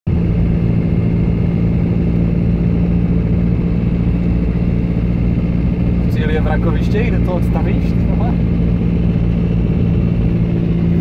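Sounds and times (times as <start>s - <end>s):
car engine droning: 0.1s - 11.0s
low road rumble: 0.1s - 11.0s.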